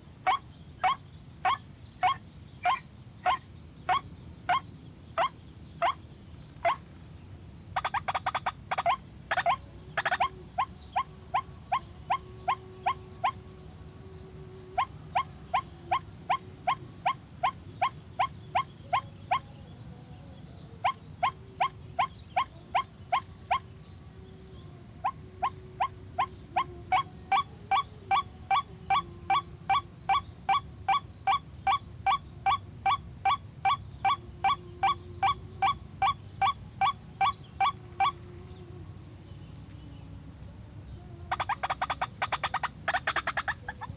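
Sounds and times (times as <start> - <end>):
waterhen calling: 0.0 - 6.0, 6.6 - 6.8, 7.8 - 13.6, 14.2 - 19.5, 20.7 - 23.8, 25.0 - 40.0, 40.8 - 43.9.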